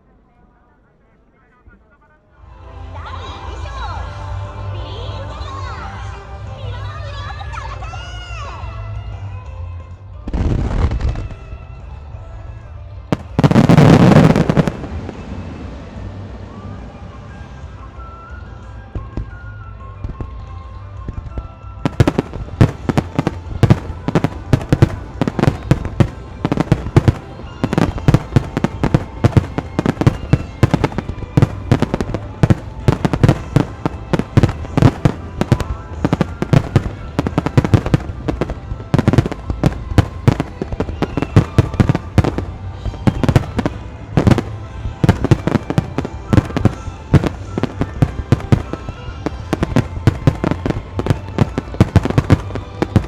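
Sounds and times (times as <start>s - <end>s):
fireworks bursting: 13.1s - 16.1s, 21.8s - 53.0s.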